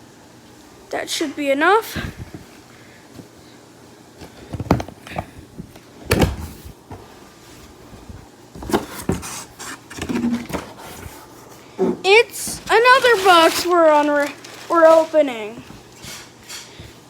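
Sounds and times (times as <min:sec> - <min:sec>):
cardboard box knocks and scrapes: 0:04.3 - 0:07.1, 0:08.0 - 0:11.2.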